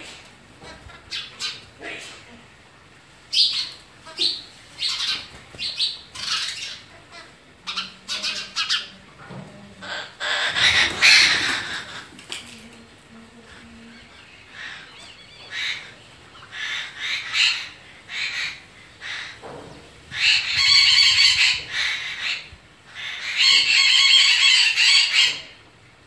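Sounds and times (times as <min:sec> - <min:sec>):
bird giving harsh rasping calls: 0:09.8 - 0:12.1.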